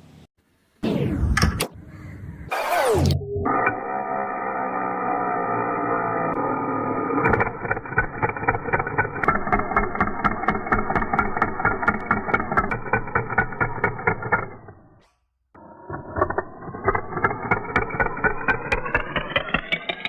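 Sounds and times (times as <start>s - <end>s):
power tool motor whining: 2.5s - 15.0s
fast regular clicking: 7.3s - 14.6s.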